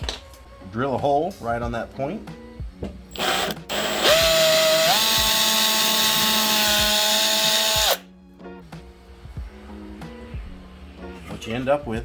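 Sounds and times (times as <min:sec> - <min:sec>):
electric drill whining: 0:03.1 - 0:08.0.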